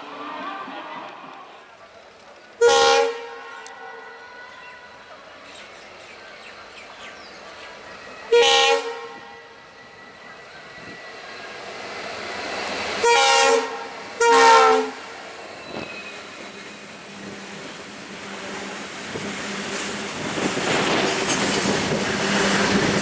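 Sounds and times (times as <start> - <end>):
train rumble: 0.0 - 23.0
train horn blasts: 2.6 - 5.1, 8.2 - 9.8, 13.0 - 15.0.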